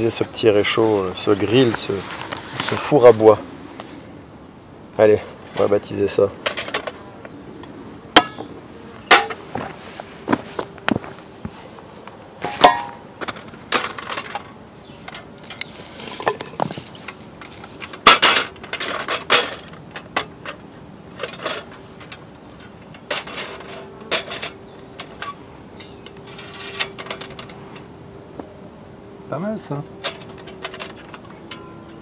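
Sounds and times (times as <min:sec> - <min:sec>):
metal cookware clattering: 0:12.4 - 0:13.0, 0:18.0 - 0:20.6, 0:23.0 - 0:27.5, 0:30.0 - 0:32.0.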